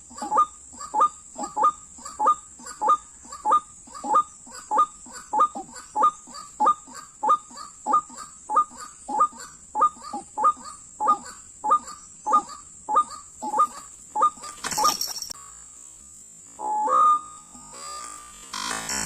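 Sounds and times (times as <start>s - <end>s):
bird call repeating: 0.1s - 15.2s.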